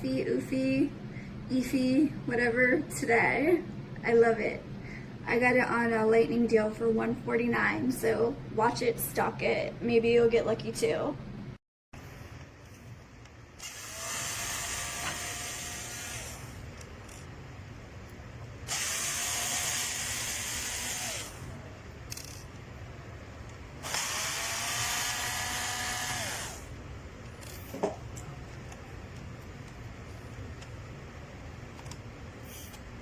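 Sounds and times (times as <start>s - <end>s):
small electric motor whine: 13.6s - 16.7s, 18.7s - 21.5s, 23.8s - 26.8s.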